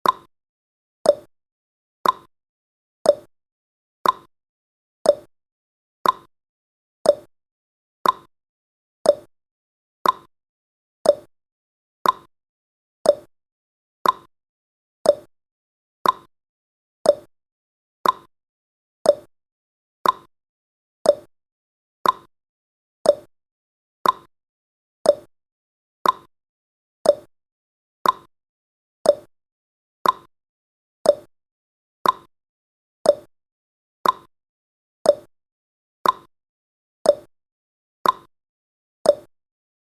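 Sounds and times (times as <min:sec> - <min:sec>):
clock ticking: 0:02.0 - 0:02.3, 0:06.0 - 0:06.3, 0:08.0 - 0:08.3, 0:10.0 - 0:10.3, 0:12.0 - 0:12.3, 0:14.0 - 0:14.3, 0:15.1 - 0:15.3, 0:16.0 - 0:16.3, 0:18.0 - 0:18.3, 0:20.0 - 0:20.3, 0:21.1 - 0:21.3, 0:22.0 - 0:22.3, 0:24.0 - 0:24.3, 0:25.1 - 0:25.3, 0:26.0 - 0:26.3, 0:27.1 - 0:27.3, 0:28.0 - 0:28.3, 0:29.1 - 0:29.3, 0:30.0 - 0:30.3, 0:31.1 - 0:31.3, 0:32.0 - 0:32.3, 0:34.0 - 0:34.3, 0:36.0 - 0:36.3, 0:38.0 - 0:38.3.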